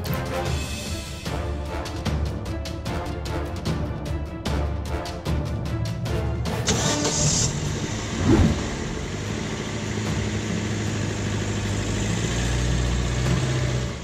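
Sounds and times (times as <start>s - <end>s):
car engine idling: 6.5s - 14.0s.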